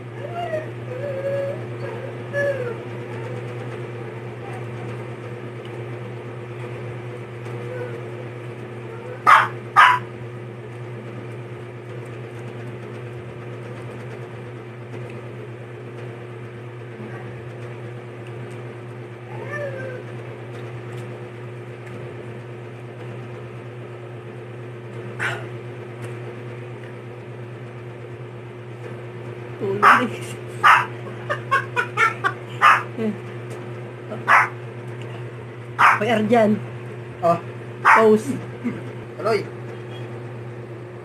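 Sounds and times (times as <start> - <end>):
steady low hum: 0.0 - 41.0
domestic animal calling: 30.6 - 32.9.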